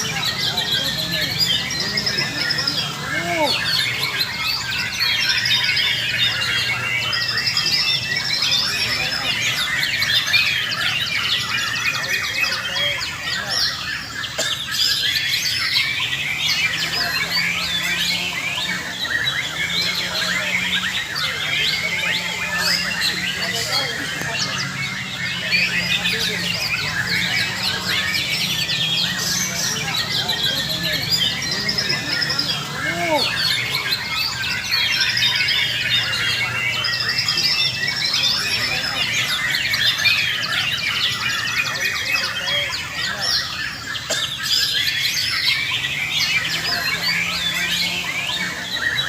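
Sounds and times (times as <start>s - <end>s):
birds singing in chorus: 0.0s - 49.0s.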